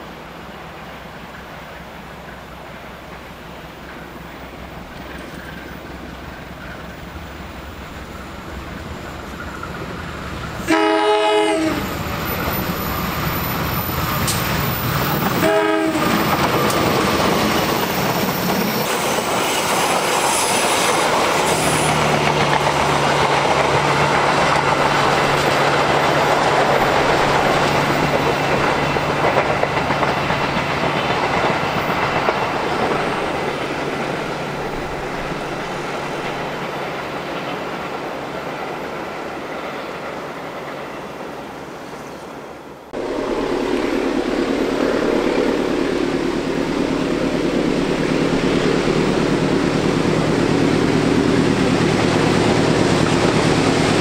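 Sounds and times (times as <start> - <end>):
diesel locomotive running: 0.0 - 39.5, 42.8 - 54.0
locomotive horn blasts: 10.6 - 11.9, 15.4 - 16.2
wheels clicking over rail joints: 20.9 - 39.1.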